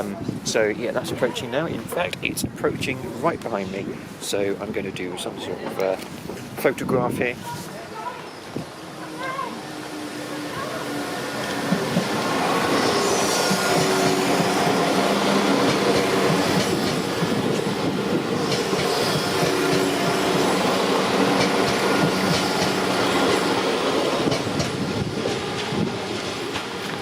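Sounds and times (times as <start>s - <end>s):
diesel train passing: 7.7s - 27.0s.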